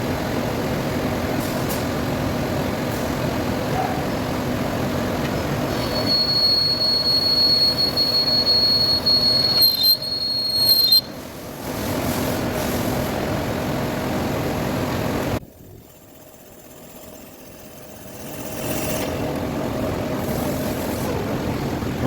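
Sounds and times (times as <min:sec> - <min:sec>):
lathe tool squealing: 0:05.7 - 0:11.1.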